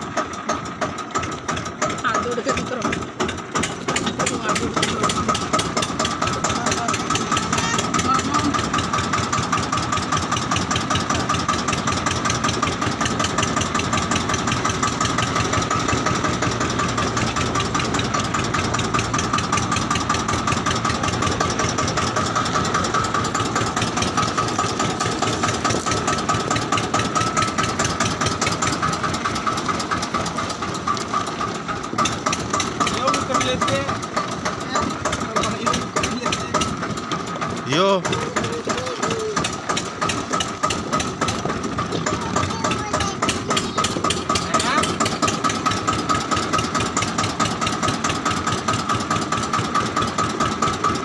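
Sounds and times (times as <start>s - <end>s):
tractor engine chugging: 0.0s - 51.0s.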